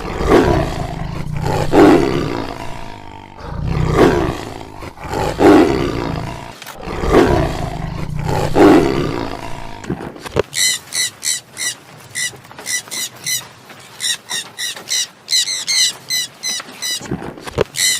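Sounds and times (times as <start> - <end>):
big cat roaring: 0.0 - 10.2.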